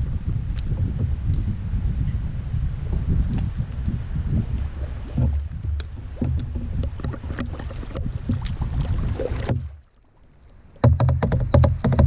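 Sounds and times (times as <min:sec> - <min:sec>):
water rumbling against kayak hull: 0:00.0 - 0:12.0
knocks and scrapes on hull: 0:04.4 - 0:09.8, 0:10.8 - 0:12.0.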